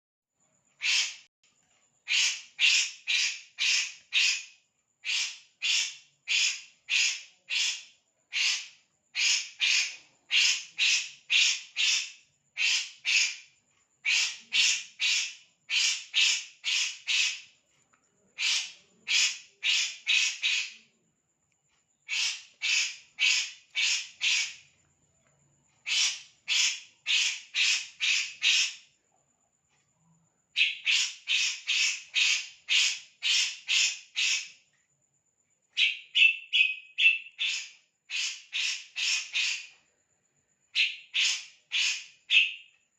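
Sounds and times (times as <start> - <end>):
bird calling harsh raspy notes: 0.8 - 1.3, 2.0 - 17.5, 18.4 - 20.9, 22.0 - 24.7, 25.8 - 28.8, 30.6 - 34.6, 35.8 - 39.7, 40.8 - 42.7.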